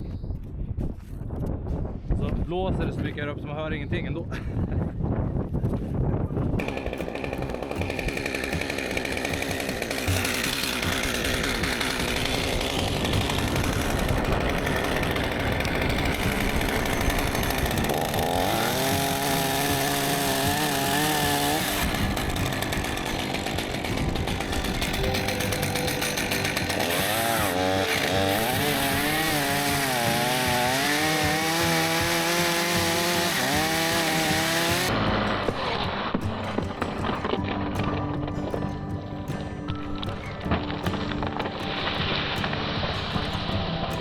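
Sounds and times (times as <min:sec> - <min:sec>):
wind noise: 0:00.0 - 0:08.2, 0:11.3 - 0:29.8
chainsaw cutting limbs: 0:06.6 - 0:38.7, 0:40.0 - 0:44.0.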